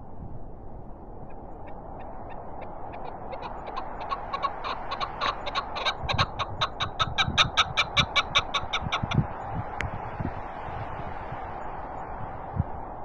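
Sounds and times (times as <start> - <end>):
steady wind: 0.0 - 13.0
wind buffeting microphone: 0.0 - 13.0
partridge clucking calls: 1.6 - 9.2.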